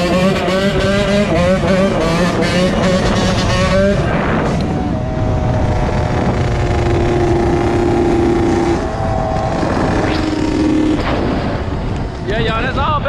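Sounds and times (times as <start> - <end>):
two-stroke motorcycle engine: 0.0 - 12.4
wind rumble on microphone: 2.7 - 13.0.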